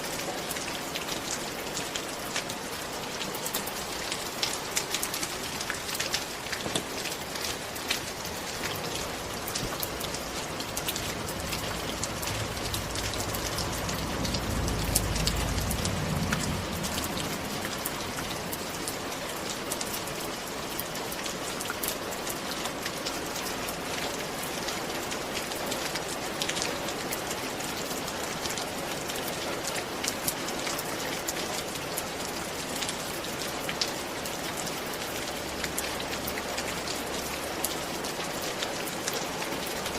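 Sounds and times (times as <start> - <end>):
raindrops ticking on a surface: 0.0 - 39.9
steady rain falling: 0.0 - 39.9
low rumble: 10.9 - 18.4.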